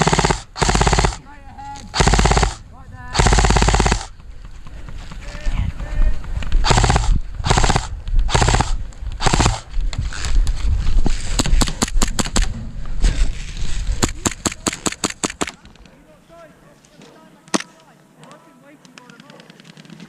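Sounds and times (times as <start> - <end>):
airsoft gun full-auto bursts: 0.0 - 1.2, 1.9 - 4.2, 6.6 - 9.7, 14.0 - 15.5
airsoft gun single shots: 6.6 - 9.6.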